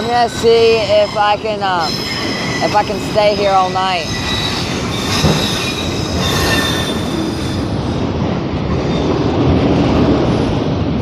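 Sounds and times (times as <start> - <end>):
high wheel squeal: 0.0 - 8.0
train wheels rumbling on rail: 0.0 - 11.0.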